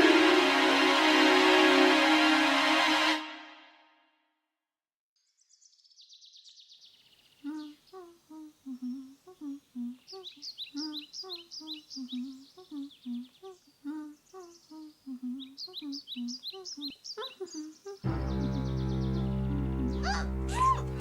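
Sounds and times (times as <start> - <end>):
loud music: 0.0 - 3.6
person humming a tune: 7.4 - 21.0.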